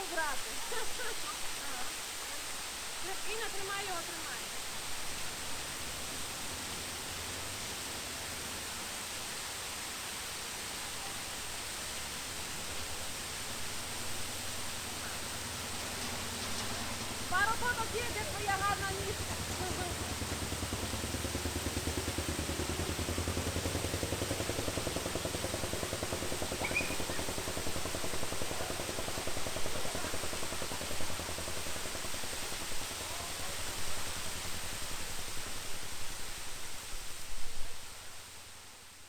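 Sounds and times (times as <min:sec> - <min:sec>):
waterfall rushing: 0:00.0 - 0:37.2
low fluttering rumble: 0:12.2 - 0:36.6.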